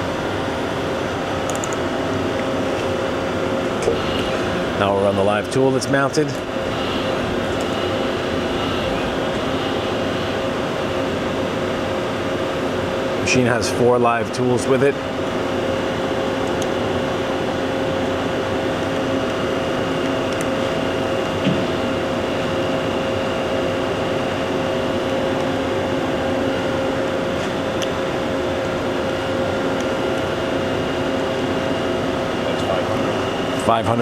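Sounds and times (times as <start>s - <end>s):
lathe machine hum with whine: 0.0s - 34.0s.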